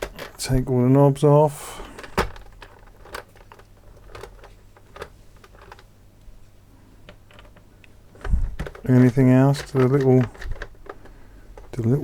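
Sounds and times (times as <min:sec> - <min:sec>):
plastic knobs clicking and tapping: 0:07.1 - 0:12.0.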